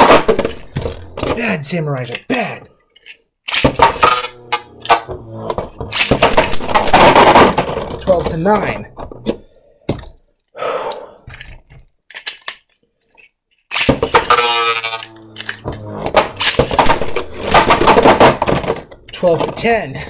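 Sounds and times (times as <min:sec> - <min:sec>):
plastic clicks and knocks: 0:03.0 - 0:10.2, 0:11.3 - 0:20.0
ripcord launcher whirring: 0:03.5 - 0:08.6, 0:13.8 - 0:18.7.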